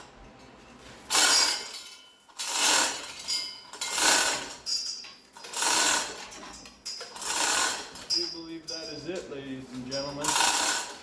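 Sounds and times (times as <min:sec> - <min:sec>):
ratchet wrench ratcheting: 0:00.9 - 0:08.8, 0:10.3 - 0:11.0
light metallic clinks: 0:00.9 - 0:09.3, 0:09.9 - 0:11.0.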